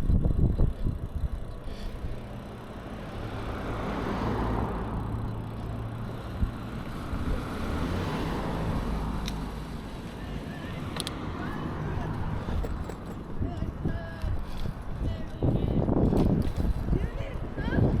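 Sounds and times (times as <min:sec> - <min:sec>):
car passing: 0:02.2 - 0:13.4.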